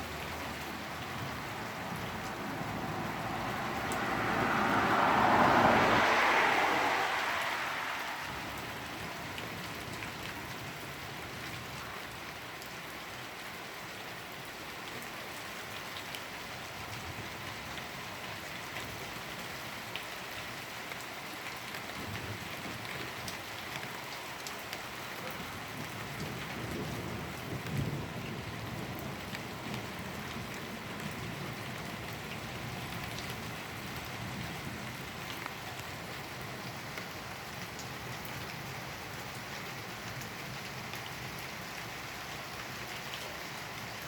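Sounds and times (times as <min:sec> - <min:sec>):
rain pattering on surfaces: 0:00.0 - 0:44.0
whooshing swell: 0:02.2 - 0:09.0.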